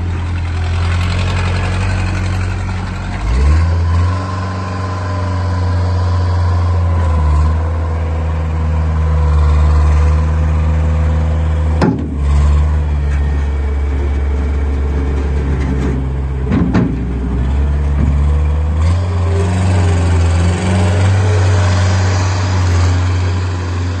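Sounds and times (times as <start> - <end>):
diesel engine running: 0.0 - 24.0
sharp knocks: 11.8 - 12.4, 16.4 - 18.4.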